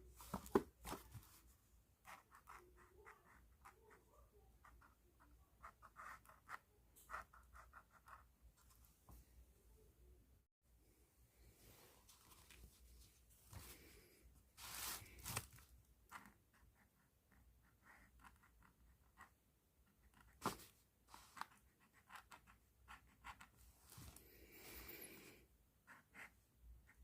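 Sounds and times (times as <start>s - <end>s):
pen scratching strokes: 2.0s - 4.0s, 4.6s - 8.3s, 16.1s - 23.7s, 25.8s - 27.0s.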